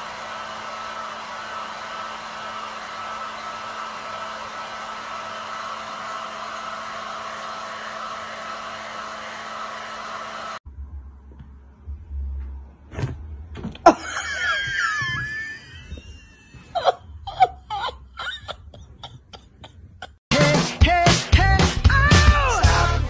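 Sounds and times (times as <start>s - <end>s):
electric blower whirring: 0.0s - 10.6s, 13.8s - 16.8s.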